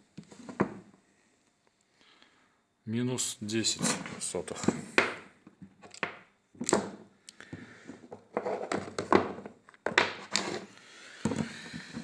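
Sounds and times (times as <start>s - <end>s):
metal parts clunking and clicking: 5.8s - 7.0s.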